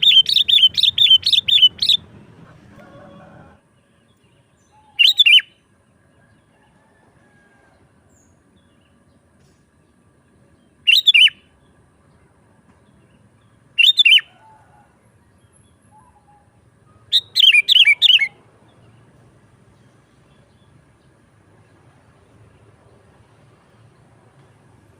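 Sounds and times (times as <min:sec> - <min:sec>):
bulbul singing: 0:00.0 - 0:02.8, 0:04.2 - 0:05.6, 0:10.6 - 0:11.5, 0:13.8 - 0:14.4, 0:15.5 - 0:19.0.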